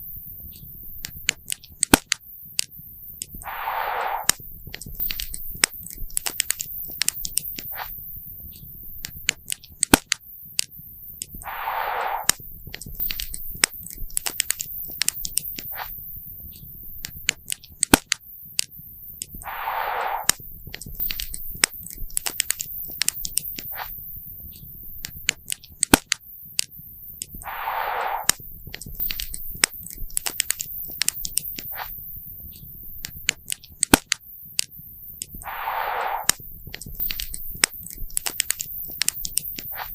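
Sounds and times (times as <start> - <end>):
rushing hiss: 3.4 - 4.4, 11.4 - 12.4, 19.4 - 20.4, 27.4 - 28.4, 35.4 - 36.4.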